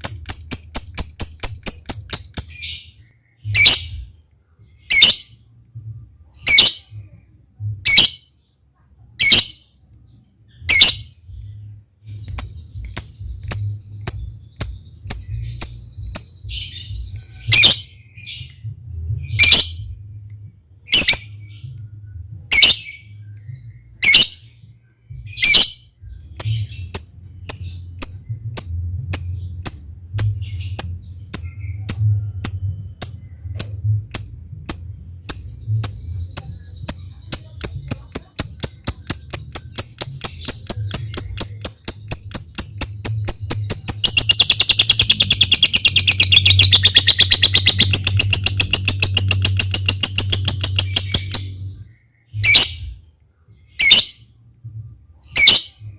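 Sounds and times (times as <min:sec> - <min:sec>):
rapid ticking bird calls: 0:00.0 - 0:02.8, 0:12.2 - 0:17.0, 0:26.3 - 0:51.5
lovebird chirps: 0:00.0 - 0:05.4, 0:06.3 - 0:07.0, 0:07.8 - 0:08.6, 0:09.2 - 0:53.0, 0:53.6 - 0:54.3, 0:55.3 - 0:55.9
fast continuous bird trill: 0:00.0 - 0:05.5, 0:07.9 - 0:54.4.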